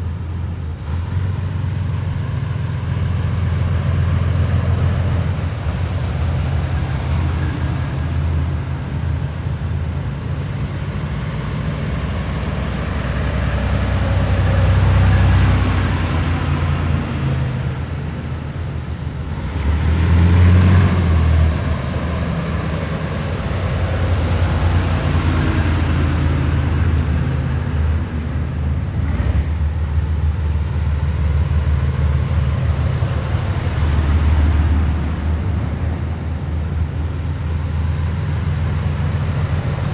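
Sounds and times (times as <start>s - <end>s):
heavy vehicles driving past: 0.0s - 39.9s.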